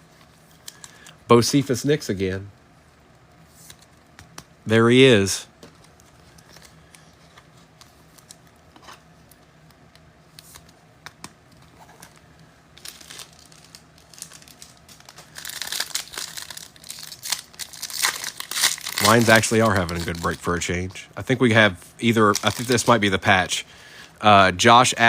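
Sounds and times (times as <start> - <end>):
foil wrapper crinkling and tearing: 12.8 - 20.9, 22.0 - 23.4.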